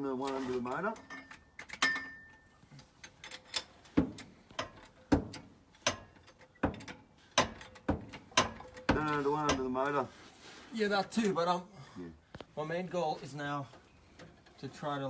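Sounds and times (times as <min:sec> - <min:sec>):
hydraulic jack clicking: 0:02.8 - 0:09.2.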